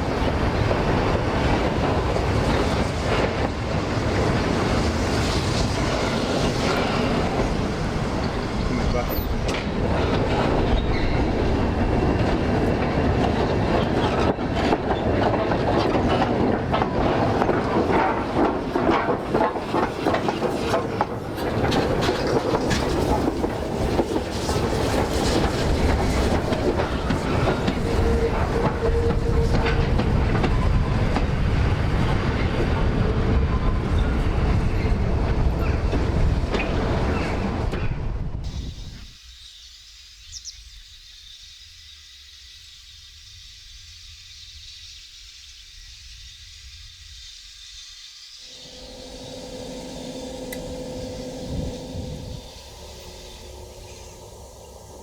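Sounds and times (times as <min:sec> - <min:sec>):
train wheels clattering over rail joints: 0:00.0 - 0:38.2.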